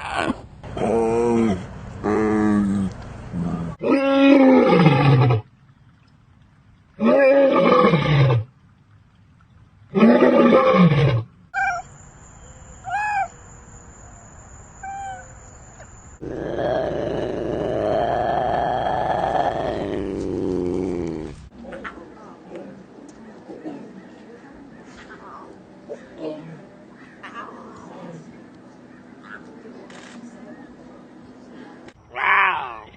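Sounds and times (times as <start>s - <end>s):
big cat roaring: 16.2s - 21.5s.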